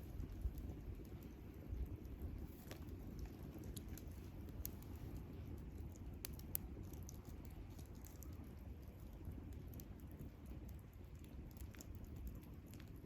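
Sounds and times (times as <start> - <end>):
campfire crackling and popping: 0.0 - 13.0
low rumble of burning fire: 0.0 - 13.0.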